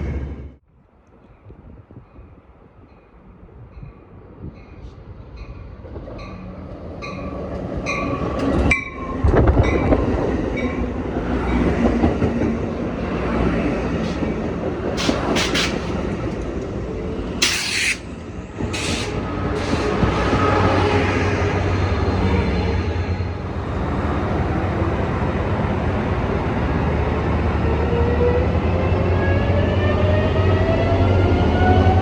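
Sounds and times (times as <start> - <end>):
train rumbling: 0.0 - 32.0
train wheels clacking: 11.4 - 20.8
high-pitched squeals: 15.0 - 20.8.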